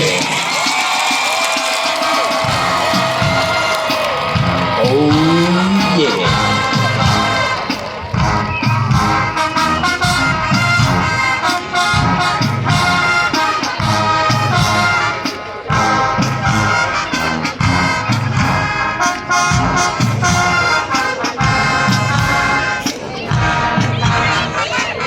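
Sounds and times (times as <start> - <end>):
steady drum beat: 0.0 - 18.8
brass playing: 2.0 - 22.7.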